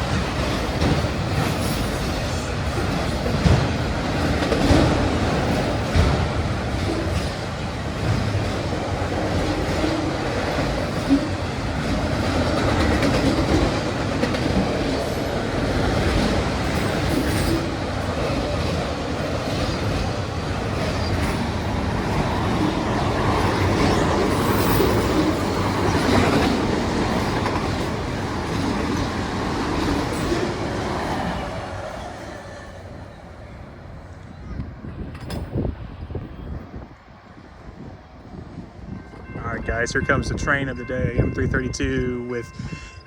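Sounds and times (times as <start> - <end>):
wheels clacking over rail joints: 0.0 - 33.5
freight train cars rolling: 0.0 - 43.0.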